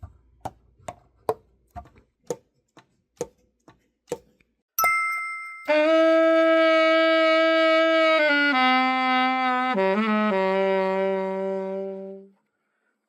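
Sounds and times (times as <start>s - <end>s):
alto saxophone long notes: 5.7s - 12.4s.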